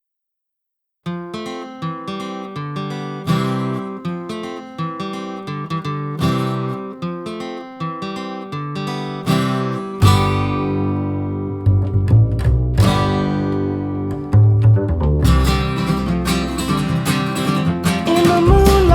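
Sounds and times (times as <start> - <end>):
acoustic guitar picking notes: 1.1 - 18.9
strummed guitar chords with bass: 9.8 - 18.9.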